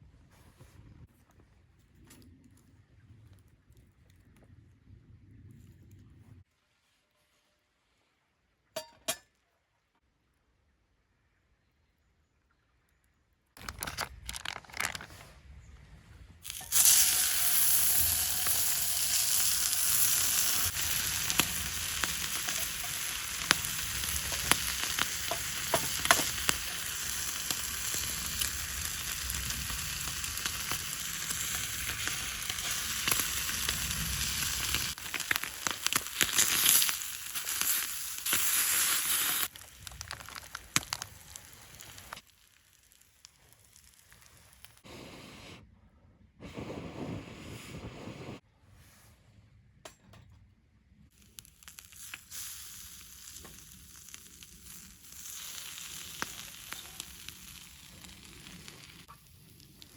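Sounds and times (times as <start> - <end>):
pops and crackles: 13.5 - 15.2, 16.4 - 44.9, 51.1 - 59.9
food sizzling in frying pan: 16.5 - 44.8, 51.2 - 59.9.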